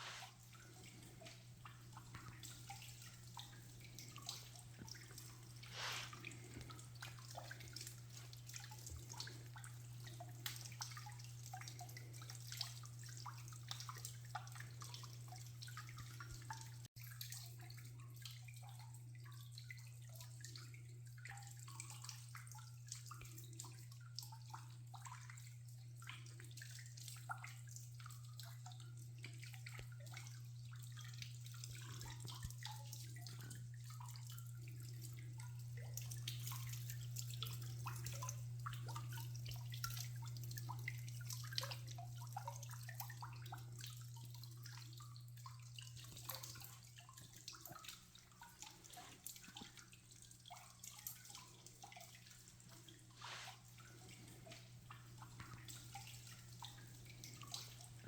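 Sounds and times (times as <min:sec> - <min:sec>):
water trickling and dripping: 0:00.0 - 0:58.0.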